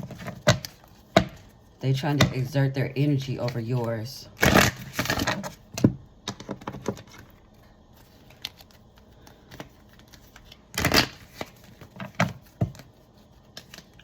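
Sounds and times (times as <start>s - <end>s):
cards clicking and tapping: 8.2s - 14.0s.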